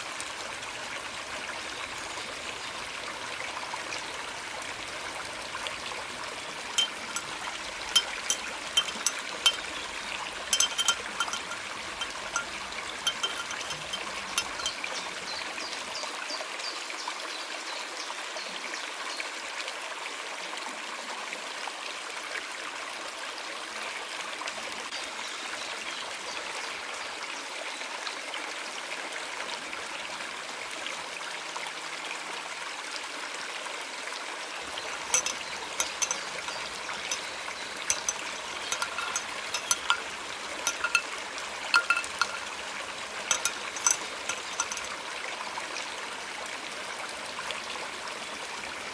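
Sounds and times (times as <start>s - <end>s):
stream water rushing: 0.0s - 16.5s, 33.9s - 48.9s.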